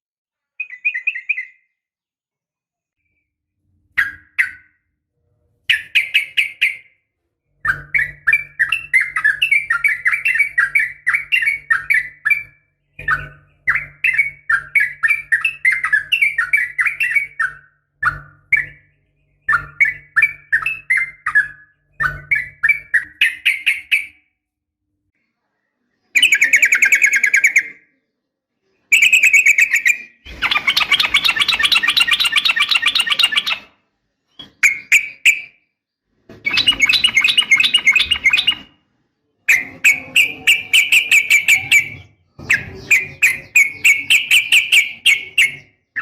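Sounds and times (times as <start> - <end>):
bird chattering call: 29.0 - 33.7, 36.5 - 38.7, 39.5 - 45.6.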